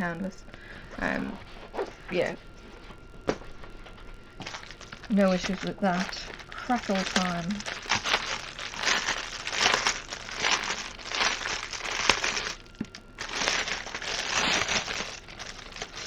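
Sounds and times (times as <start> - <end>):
plastic bags crinkling: 4.3 - 16.0.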